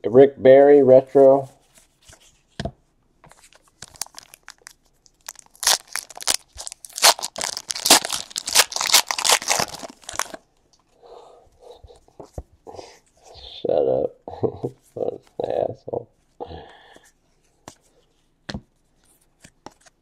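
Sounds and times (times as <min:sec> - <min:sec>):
foil wrapper tearing and crinkling: 0:03.8 - 0:10.4.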